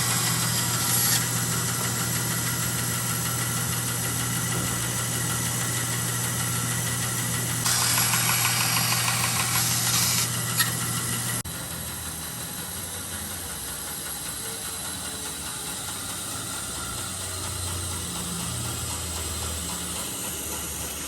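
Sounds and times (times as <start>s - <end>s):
power tool motor running: 0.0s - 4.1s, 5.7s - 11.4s.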